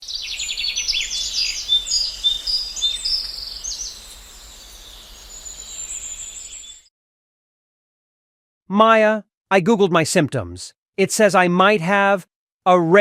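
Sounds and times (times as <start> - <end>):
birds chirping and singing: 0.0 - 6.9.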